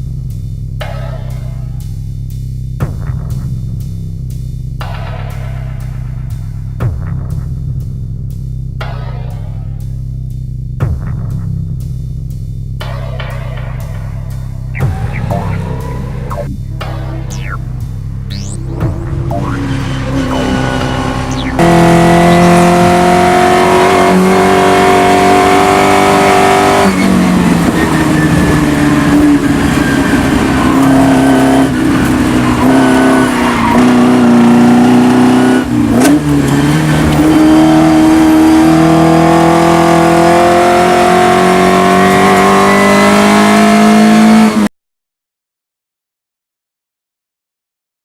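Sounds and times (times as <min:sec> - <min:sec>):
race car engine revving: 0:14.7 - 0:44.7.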